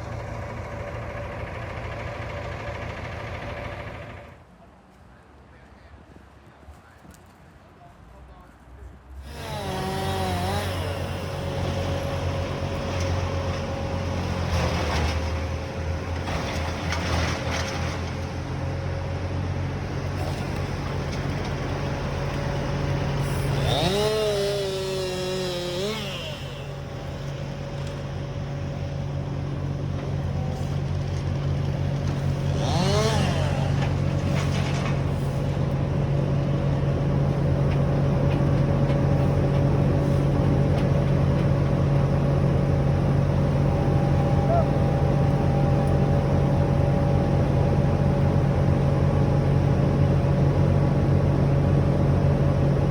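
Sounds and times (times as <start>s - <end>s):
small engine running: 9.2s - 18.4s, 20.0s - 35.7s.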